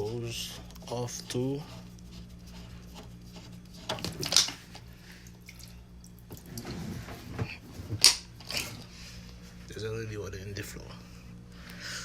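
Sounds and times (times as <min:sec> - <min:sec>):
water dripping and splashing: 0:05.2 - 0:06.6.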